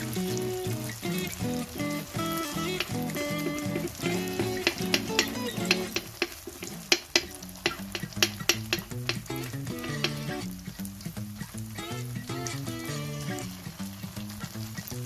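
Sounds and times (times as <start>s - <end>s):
background music: 0.0s - 6.3s, 7.7s - 10.6s, 11.8s - 13.7s
food sizzling in a frying pan: 0.0s - 15.0s
spatula scraping a pan: 2.5s - 10.4s.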